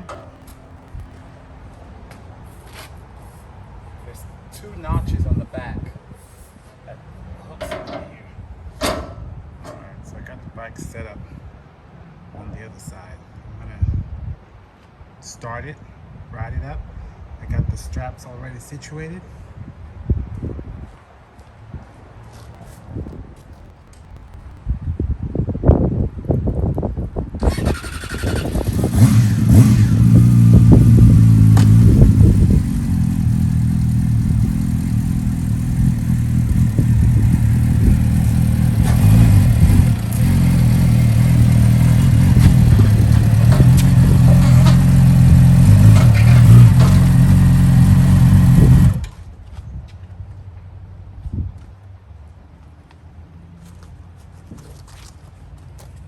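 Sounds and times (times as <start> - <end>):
motorcycle engine revving: 0.0 - 1.2, 27.4 - 49.2.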